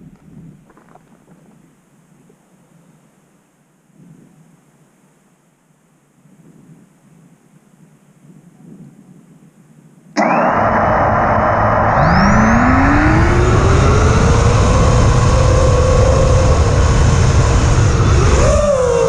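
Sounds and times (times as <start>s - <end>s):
drone motors whining: 10.2s - 19.0s
wind and prop-wash rumble: 12.0s - 19.0s.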